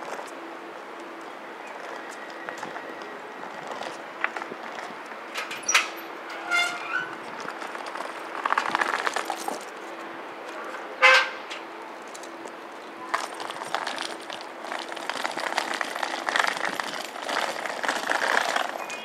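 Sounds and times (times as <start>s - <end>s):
train horn toots: 11.0s - 11.4s.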